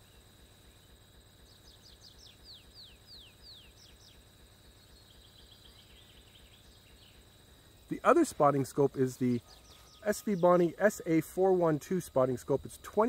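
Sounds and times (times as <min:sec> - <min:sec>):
high insect drone: 0:00.0 - 0:13.0
songbird whistled notes: 0:09.4 - 0:10.5.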